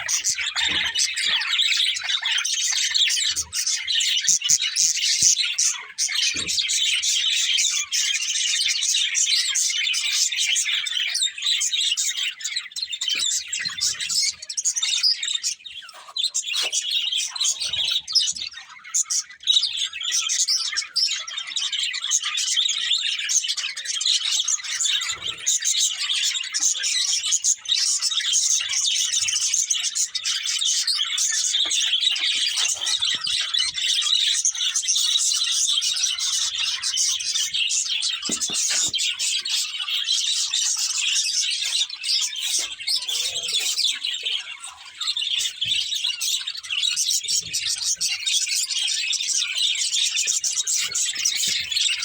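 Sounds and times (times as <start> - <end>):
budgerigars chirping and chattering: 0.0 - 52.0
faint low knocks of birds moving: 36.2 - 40.1.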